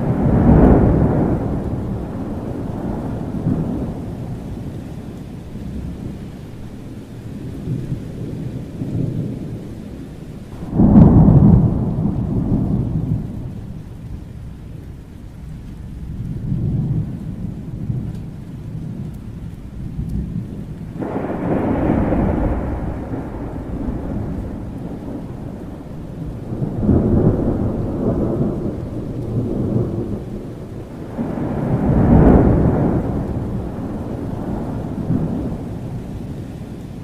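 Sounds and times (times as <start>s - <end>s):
rolling thunder: 0.0s - 37.0s
steady rain: 0.0s - 37.0s.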